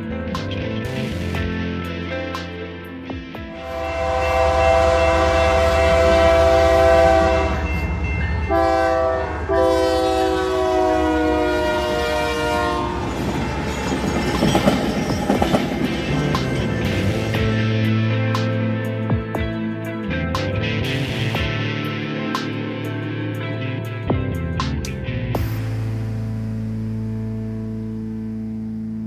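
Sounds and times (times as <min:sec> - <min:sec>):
locomotive air horn blasts: 0:03.5 - 0:13.3
train wheels clattering on rails: 0:12.9 - 0:17.6.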